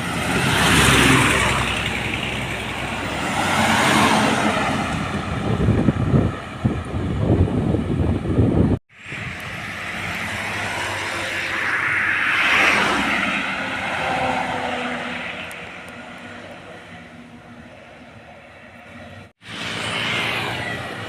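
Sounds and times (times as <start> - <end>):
vehicle passing: 0.0 - 7.6, 9.0 - 18.0
heavy vehicle passing: 0.0 - 21.0.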